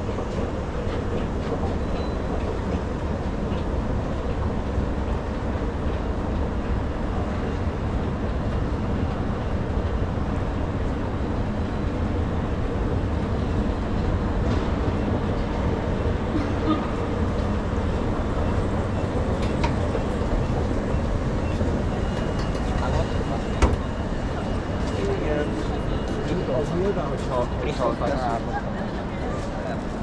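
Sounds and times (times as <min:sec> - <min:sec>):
train rumbling on rails: 0:00.0 - 0:30.0.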